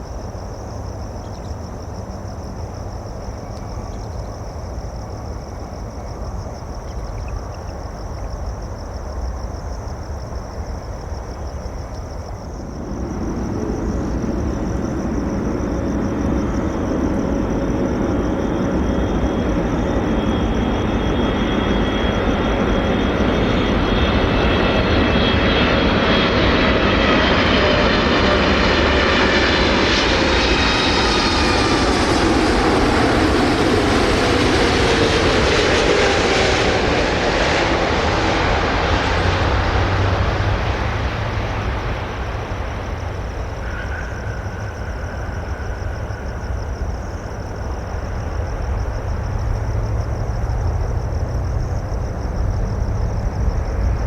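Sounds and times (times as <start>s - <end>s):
falling jet engine whines: 11.3s - 54.0s
steady low rumble: 11.6s - 54.0s
jet roar passing overhead: 12.6s - 54.0s.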